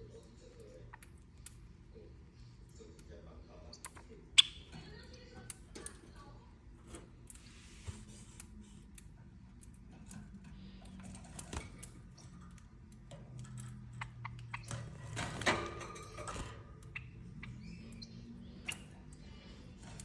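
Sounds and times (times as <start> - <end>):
faint low hum: 0.0 - 20.0
bird beak pecking and tapping: 8.1 - 20.0.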